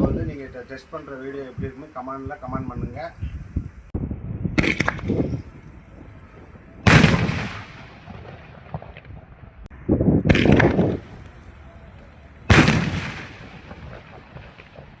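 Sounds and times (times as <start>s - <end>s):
firework shells exploding: 4.6s - 5.6s, 6.3s - 9.4s, 10.2s - 11.3s, 12.5s - 15.0s.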